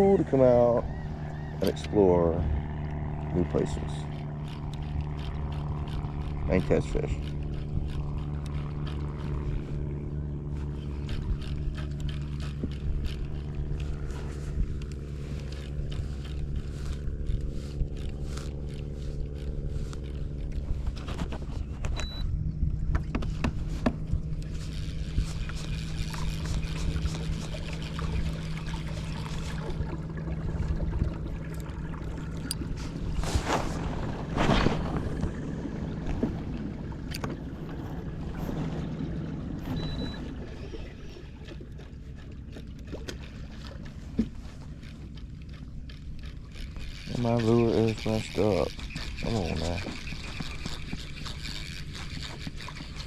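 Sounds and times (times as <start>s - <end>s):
boat motor humming: 0.0s - 53.0s
knocks and scrapes against hull: 4.0s - 22.0s, 22.8s - 53.0s
water splashing: 25.0s - 53.0s.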